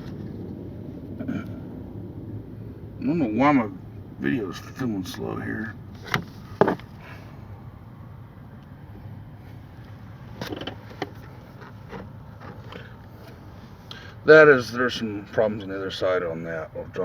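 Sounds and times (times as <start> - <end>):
steady low hum: 0.0 - 17.0
light clicks and knocks: 6.0 - 7.0, 9.8 - 13.4.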